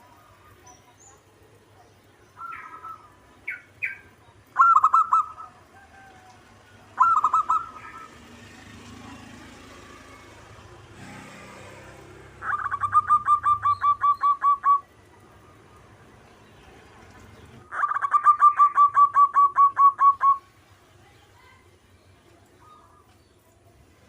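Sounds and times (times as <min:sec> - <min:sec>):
dove cooing: 0:02.4 - 0:08.8, 0:12.4 - 0:15.9, 0:17.7 - 0:20.5.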